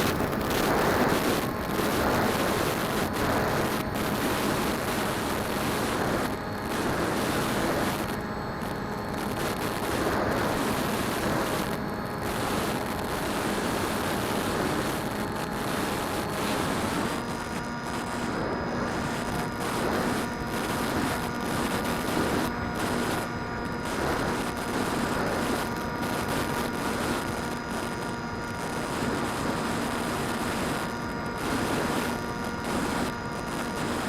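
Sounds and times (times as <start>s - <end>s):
wind on microphone: 0.0s - 8.1s
drone motors humming: 0.0s - 26.7s.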